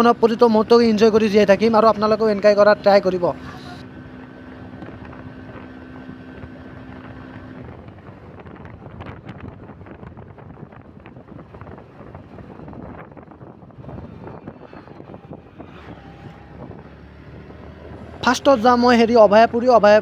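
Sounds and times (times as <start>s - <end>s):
motorcycle riding at speed: 0.0s - 20.0s
wind buffeting microphone: 3.1s - 20.0s.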